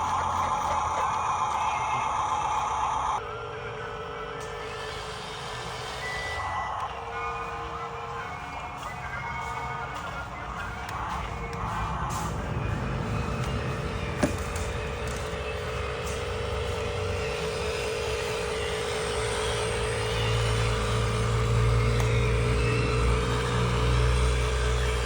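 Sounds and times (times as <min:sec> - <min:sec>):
toy truck motor whining: 0:00.0 - 0:25.0
click: 0:22.0 - 0:22.2.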